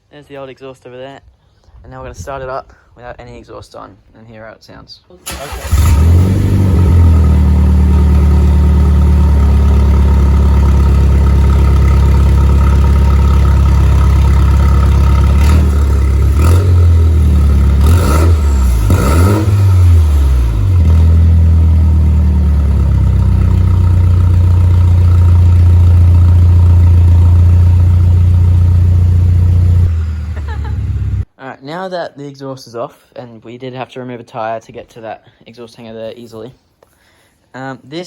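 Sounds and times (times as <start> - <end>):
loud raw car engine idle: 6.4 - 17.8, 19.6 - 31.2.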